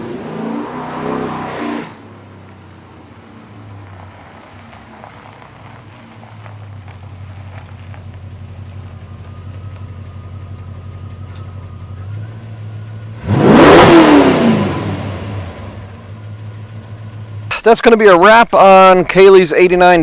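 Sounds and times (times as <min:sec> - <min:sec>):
vehicle passing close by: 0:00.0 - 0:02.5, 0:13.2 - 0:15.9
vehicle engine humming: 0:00.0 - 0:20.0.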